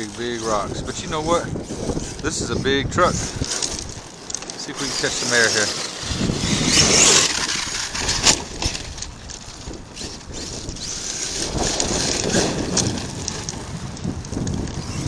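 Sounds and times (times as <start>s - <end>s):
electric motor whining: 0.0s - 15.0s
wind on microphone: 0.0s - 15.0s
clicks and rattles: 3.1s - 6.0s, 6.8s - 14.8s.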